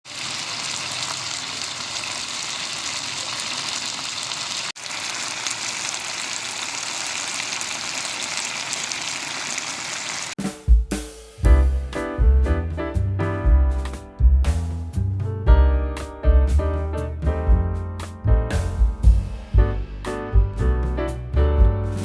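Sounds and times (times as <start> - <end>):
chicken sizzling in hot oil: 0.0 - 10.4.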